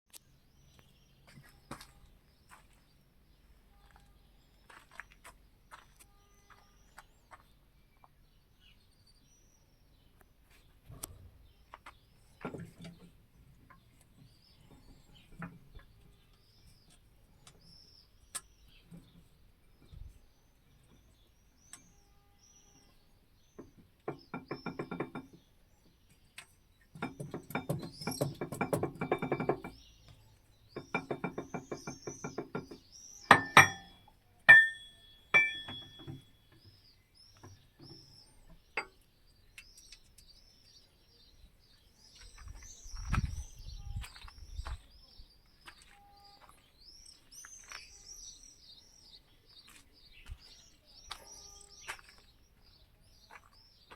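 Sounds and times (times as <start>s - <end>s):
birds chirping: 0.1s - 53.9s
sharp ringing knocks: 23.6s - 25.4s, 27.0s - 29.8s, 30.8s - 36.6s.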